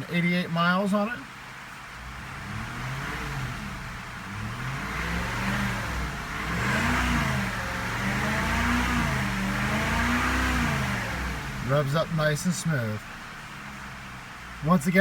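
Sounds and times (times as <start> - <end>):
car engine revving: 1.3 - 15.0.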